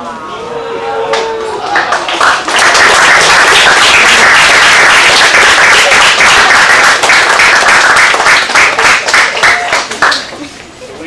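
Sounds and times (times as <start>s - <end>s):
people applauding: 0.0s - 10.5s.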